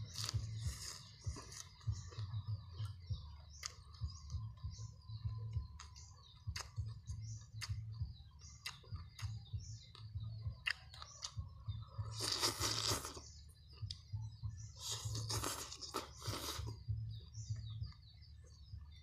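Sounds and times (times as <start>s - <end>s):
person chewing: 0.0s - 4.4s, 5.4s - 7.9s, 8.5s - 14.1s, 14.7s - 16.8s
small birds chirping: 0.0s - 19.0s
wet mouth clicks and smacks: 3.6s - 4.4s, 5.8s - 11.4s.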